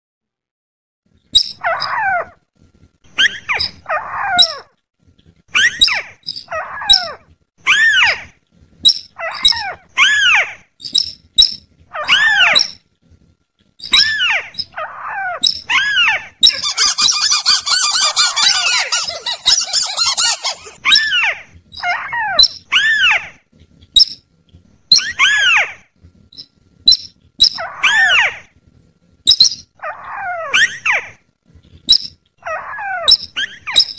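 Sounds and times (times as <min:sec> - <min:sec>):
bird-luring calls: 0:16.4 - 0:20.8
dense bird chattering: 0:16.4 - 0:20.8.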